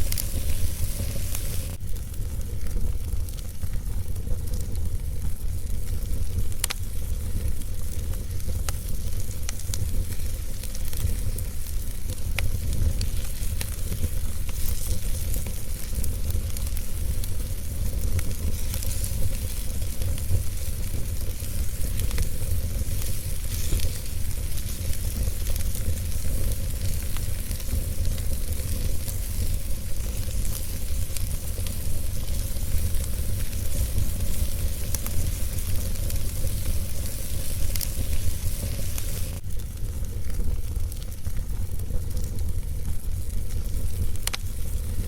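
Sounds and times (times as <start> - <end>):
fire crackling: 0.0 - 45.0.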